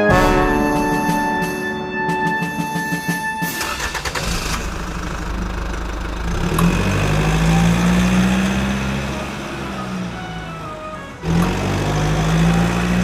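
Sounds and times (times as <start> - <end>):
engine humming: 3.4 - 13.0.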